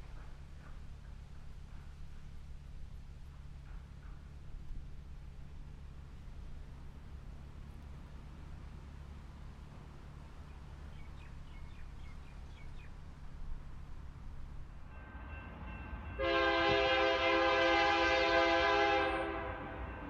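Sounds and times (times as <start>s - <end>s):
train rumbling: 0.0s - 20.0s
train horn blast: 14.9s - 20.0s.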